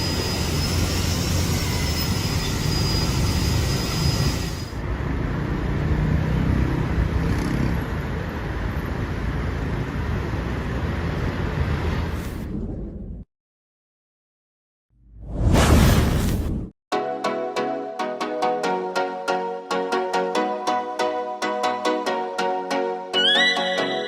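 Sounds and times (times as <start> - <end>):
low rumble of passing vehicles: 4.8 - 13.2.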